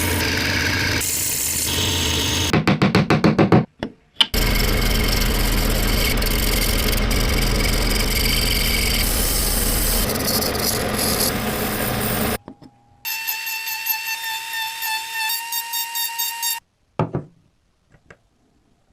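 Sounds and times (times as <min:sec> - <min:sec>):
electric coffee grinder running: 0:04.4 - 0:12.4.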